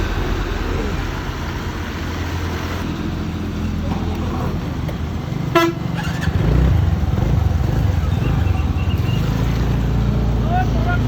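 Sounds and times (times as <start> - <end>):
scooter engine rumble: 0.0 - 11.0
vehicle horn toot: 5.5 - 6.0.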